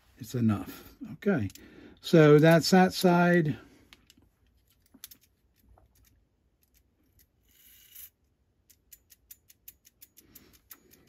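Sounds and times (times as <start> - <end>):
small metallic clicks: 1.4 - 1.7, 3.9 - 11.0.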